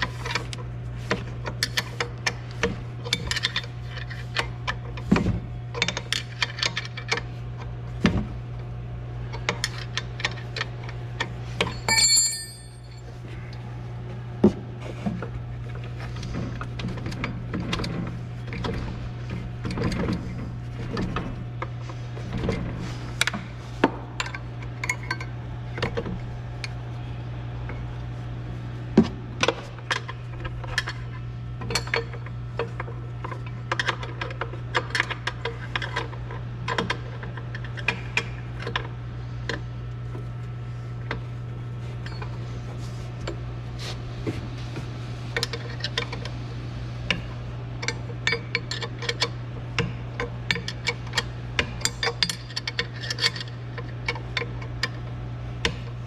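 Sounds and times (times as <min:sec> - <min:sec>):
steady low hum: 0:00.0 - 0:56.0
metallic tool clinks and clanks: 0:11.6 - 0:13.0.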